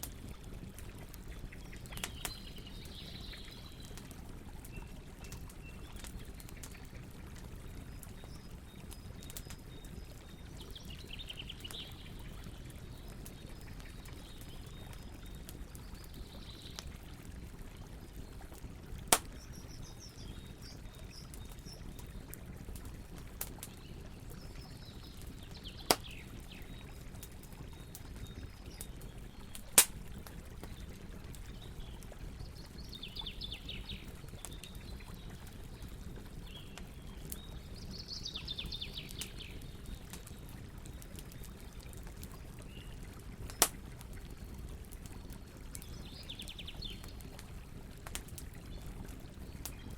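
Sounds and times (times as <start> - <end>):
burning wood popping: 0.0 - 9.7, 18.4 - 20.4, 21.2 - 32.6, 39.0 - 49.9
campfire burning: 0.0 - 49.9.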